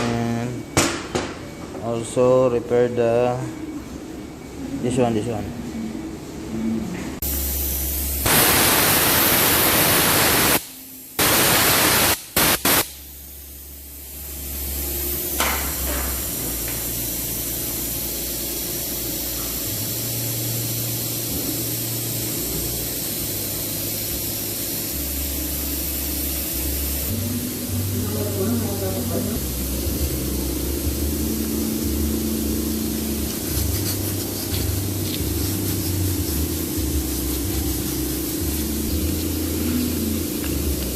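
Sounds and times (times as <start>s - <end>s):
hissing jet of spray: 7.3s - 13.2s, 15.8s - 40.9s.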